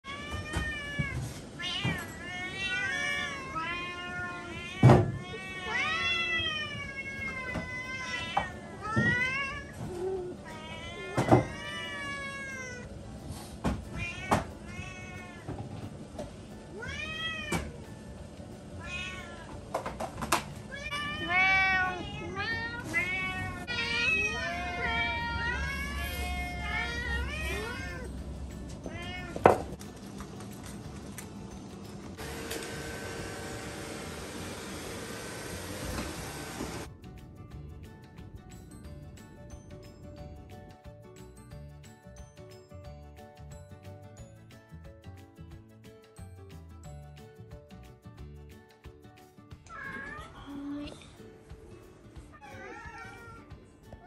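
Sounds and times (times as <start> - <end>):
cats meowing: 0.0 - 12.9, 13.9 - 15.8, 16.7 - 17.9, 18.8 - 19.8, 20.7 - 29.8, 49.7 - 51.1, 52.3 - 54.0.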